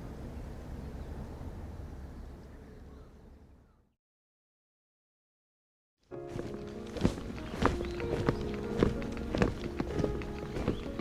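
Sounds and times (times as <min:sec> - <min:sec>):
background music with sustained tones: 0:06.1 - 0:11.0
footsteps walking: 0:06.1 - 0:11.0.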